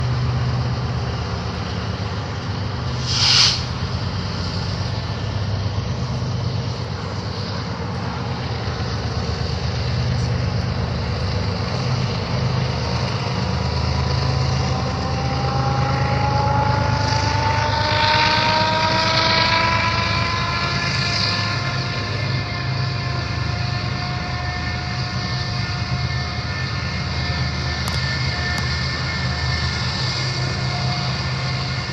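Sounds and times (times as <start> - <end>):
diesel locomotives rumbling: 0.0 - 31.9
burst of hiss: 2.9 - 4.8
whine rising in pitch: 2.9 - 8.6, 13.6 - 31.9.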